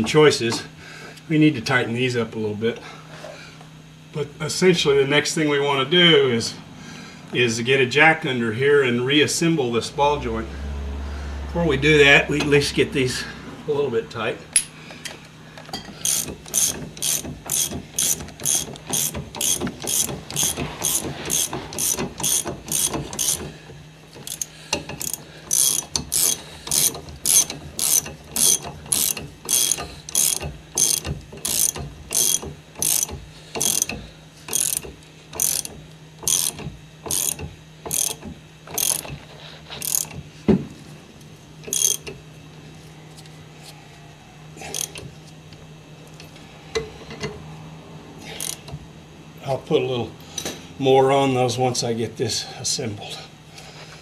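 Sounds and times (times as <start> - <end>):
ratchet wrench clicking: 16.0 - 23.5, 24.1 - 39.2, 39.8 - 40.2, 41.6 - 42.2, 44.7 - 45.1, 48.3 - 48.7.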